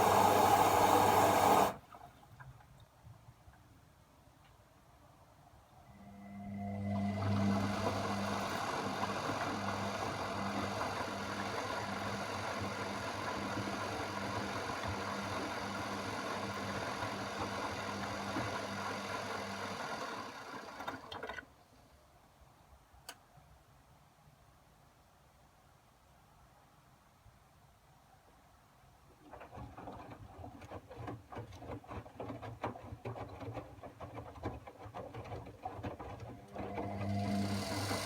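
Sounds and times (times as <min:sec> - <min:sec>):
washing machine hum: 0:00.0 - 0:02.5, 0:06.0 - 0:21.4, 0:29.2 - 0:38.0
click: 0:23.0 - 0:23.2.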